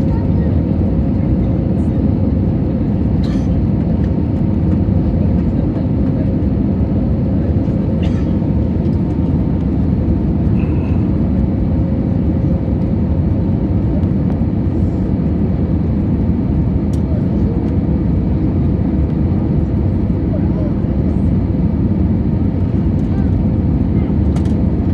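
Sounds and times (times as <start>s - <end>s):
jet engines roaring: 0.0s - 24.9s.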